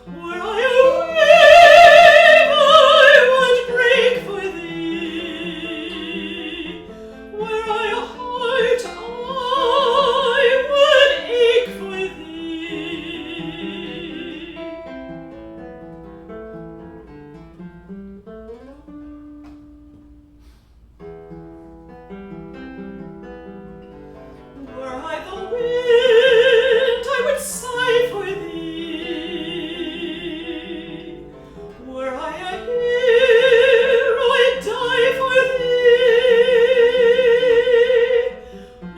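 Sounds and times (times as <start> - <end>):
trained singer with vibrato: 0.0 - 14.9, 24.7 - 38.9
plucked acoustic guitar: 0.0 - 38.9.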